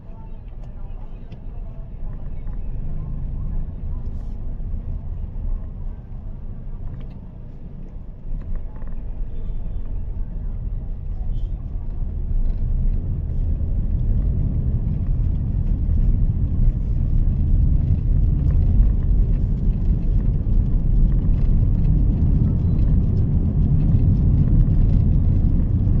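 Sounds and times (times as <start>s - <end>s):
car engine rumble: 0.0s - 26.0s
road noise: 0.0s - 26.0s.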